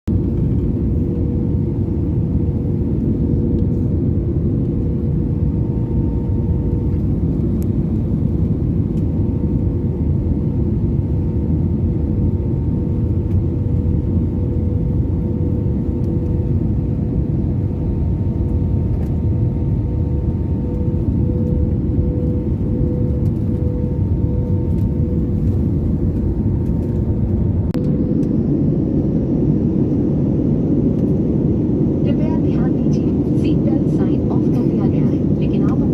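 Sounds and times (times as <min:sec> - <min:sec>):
aircraft drone: 0:00.1 - 0:35.9.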